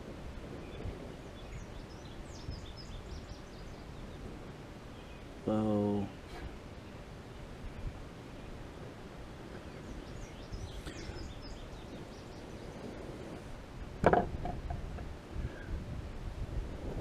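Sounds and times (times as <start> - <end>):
wind rumbling on microphone: 0.0 - 17.0
faint bird chirps: 0.6 - 4.3, 4.9 - 8.9, 9.5 - 13.4.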